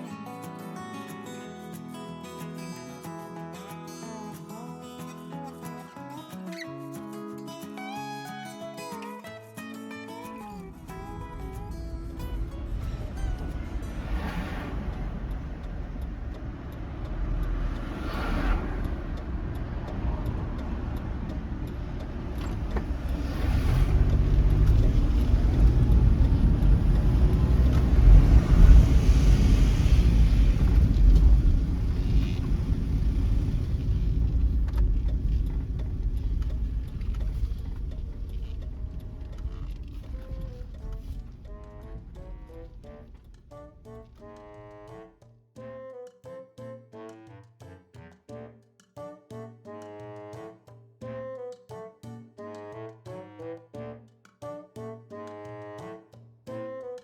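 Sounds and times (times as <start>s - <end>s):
passing traffic whooshes: 10.4s - 45.1s
road vehicle rumble: 10.4s - 45.1s.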